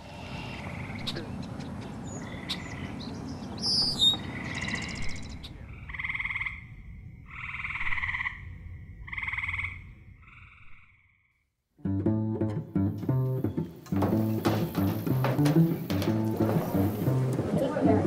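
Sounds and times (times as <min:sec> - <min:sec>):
bird chirp: 0:00.3 - 0:06.0
frogs trilling: 0:04.0 - 0:11.3.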